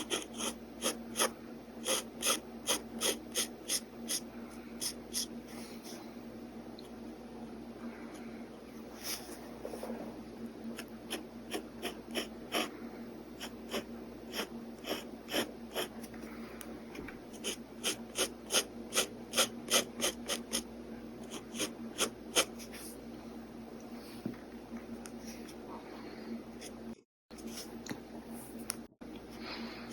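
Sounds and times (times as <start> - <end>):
pen nib scratching on paper: 0.0 - 4.2, 10.8 - 12.7, 13.4 - 16.0, 17.3 - 20.6.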